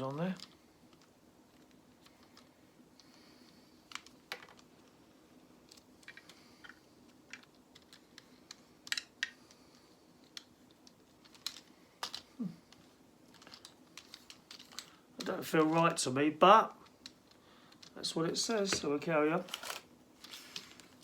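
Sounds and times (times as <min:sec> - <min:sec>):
plastic bricks clicking: 0:05.6 - 0:16.0, 0:16.8 - 0:18.0, 0:19.5 - 0:21.0.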